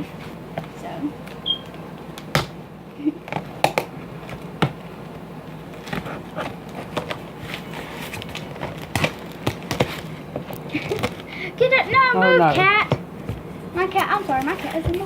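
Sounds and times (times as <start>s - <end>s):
packaging being cut and handled: 5.8s - 11.3s.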